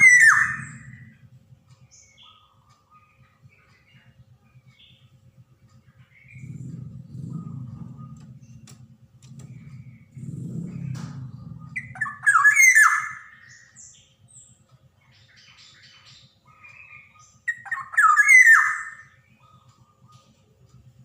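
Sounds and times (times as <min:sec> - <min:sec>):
bird calling falling notes: 0:00.0 - 0:01.3, 0:06.2 - 0:13.8, 0:16.6 - 0:20.3
low pulsing buzz: 0:00.0 - 0:21.0.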